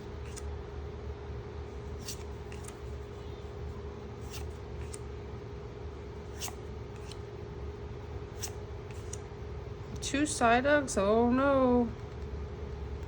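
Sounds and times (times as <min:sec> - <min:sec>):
trading cards sliding: 0:00.0 - 0:00.5, 0:01.8 - 0:05.1, 0:06.2 - 0:07.3, 0:08.3 - 0:09.2
steady electrical hum: 0:00.0 - 0:13.0.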